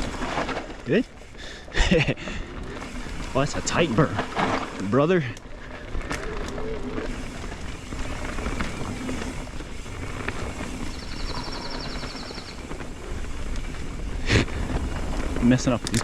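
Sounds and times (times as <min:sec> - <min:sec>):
bike tyres rumbling on dirt: 0:00.0 - 0:16.0
rapid bike ticking: 0:00.0 - 0:16.0
wind noise: 0:05.8 - 0:16.0.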